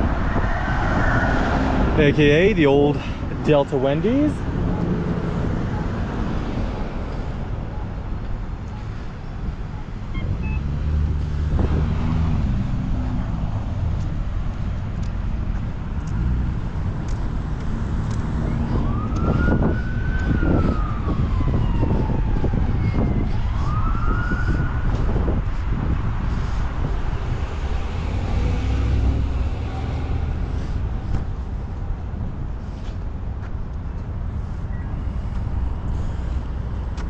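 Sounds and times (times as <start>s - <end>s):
emergency siren wailing: 0.0s - 2.0s, 18.3s - 26.0s
road noise: 0.0s - 37.0s
vehicle engine rumble: 0.0s - 37.0s.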